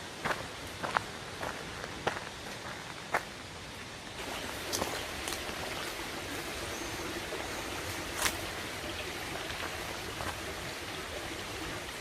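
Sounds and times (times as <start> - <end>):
stream water rushing: 3.8 - 12.0.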